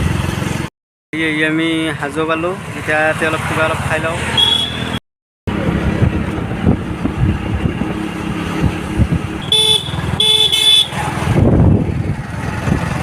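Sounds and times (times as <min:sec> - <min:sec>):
road traffic and engine noise: 0:00.0 - 0:13.0
vehicle horn honking: 0:04.4 - 0:05.0, 0:09.4 - 0:11.0.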